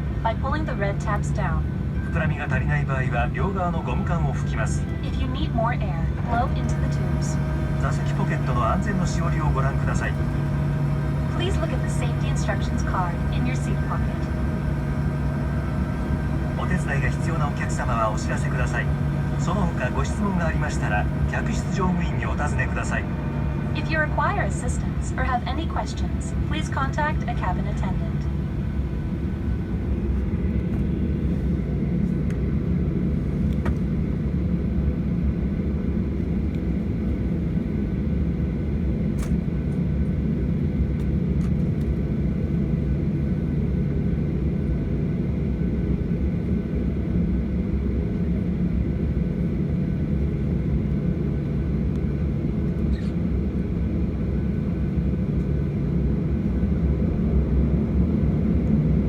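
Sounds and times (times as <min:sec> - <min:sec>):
jet engines running: 0:00.0 - 0:59.0
cabin airflow: 0:02.8 - 0:34.8.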